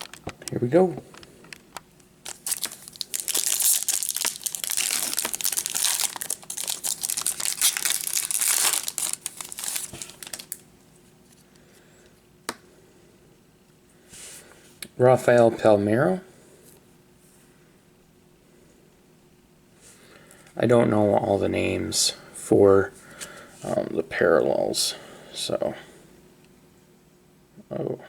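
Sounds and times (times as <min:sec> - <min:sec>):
plastic wrapping torn and crinkled: 0:00.0 - 0:00.3, 0:02.2 - 0:10.6.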